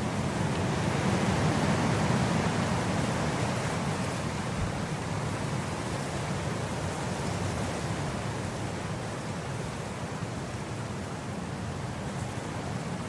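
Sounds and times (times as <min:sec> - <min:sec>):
wind blowing across grass: 0:00.0 - 0:13.0.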